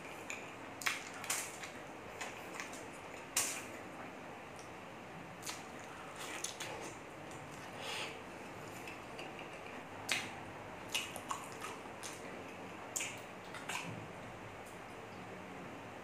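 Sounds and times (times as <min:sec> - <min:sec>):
wet chewing and lip-smacking: 0:08.7 - 0:14.0.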